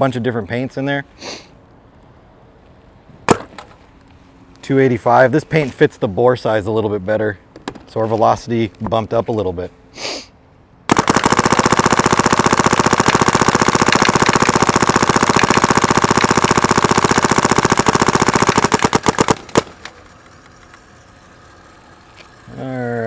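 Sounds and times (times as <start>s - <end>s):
paintball gun firing: 3.3s - 3.8s, 10.9s - 21.0s.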